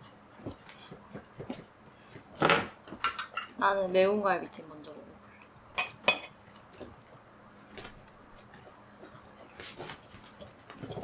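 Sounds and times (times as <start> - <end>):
cutlery clinking on dish: 2.4 - 3.6, 5.8 - 6.4
utensils tapping tableware: 2.4 - 3.6, 5.8 - 6.4.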